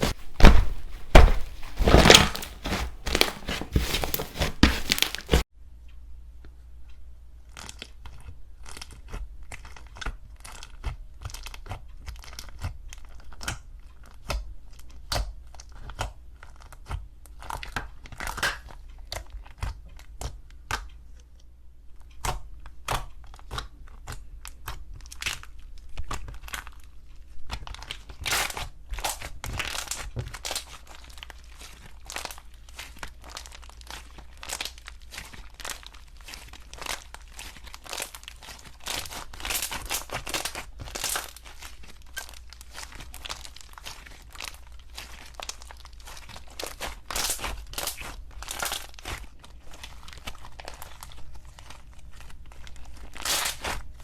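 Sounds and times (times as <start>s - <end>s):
slime crackling and popping: 28.3s - 53.8s.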